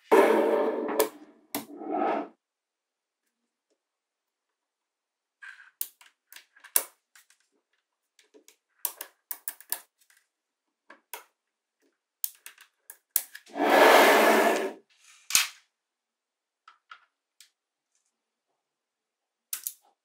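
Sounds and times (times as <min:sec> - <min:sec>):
magnetic balls clicking together: 0:19.5 - 0:19.9.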